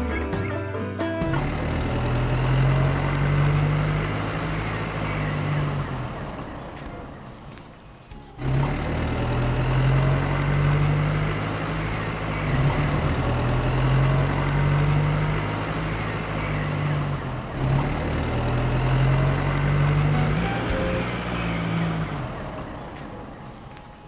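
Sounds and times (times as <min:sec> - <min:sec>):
small motor humming: 0:20.1 - 0:22.3.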